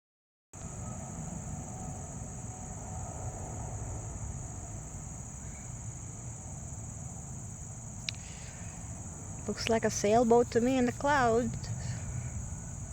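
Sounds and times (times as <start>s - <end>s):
insects chirping: 0.6s - 12.9s.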